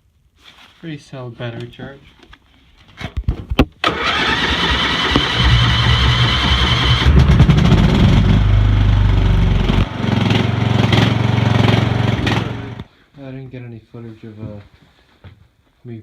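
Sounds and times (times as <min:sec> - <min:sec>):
tractor engine cranking and running: 0:03.8 - 0:12.9.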